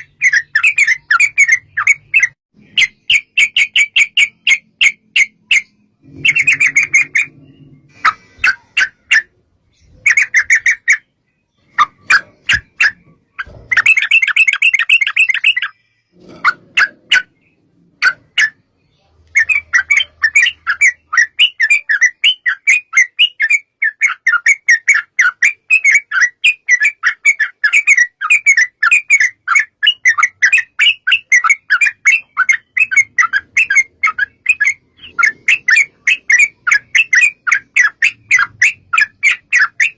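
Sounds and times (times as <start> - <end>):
bird chattering and trilling: 0.0 - 39.9.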